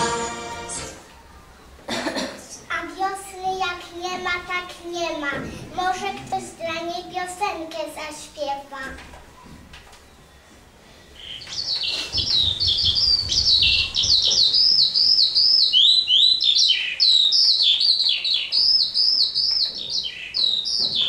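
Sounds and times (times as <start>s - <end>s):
birds chirping: 8.8s - 21.0s.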